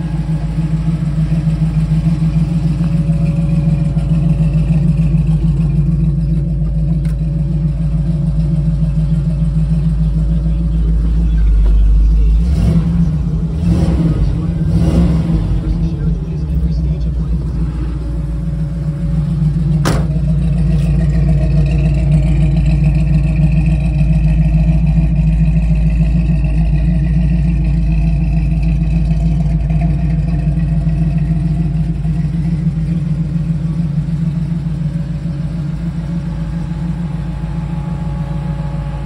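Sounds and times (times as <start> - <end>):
car engine idling: 0.0 - 39.0
sharp knock: 19.8 - 20.2.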